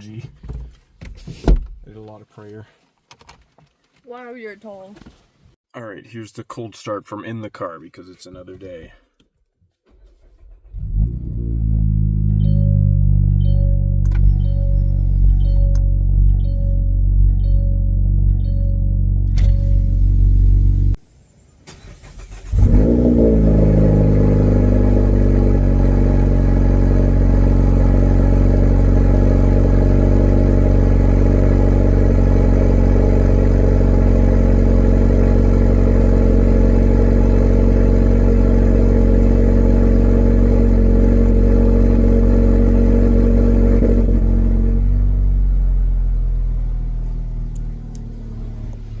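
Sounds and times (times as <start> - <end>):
car engine starting and idling: 9.7 - 21.0, 21.6 - 49.0.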